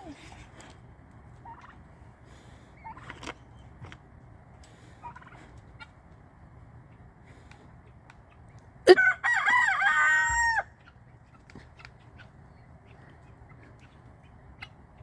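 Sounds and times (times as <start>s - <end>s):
rooster crowing: 8.9s - 10.7s.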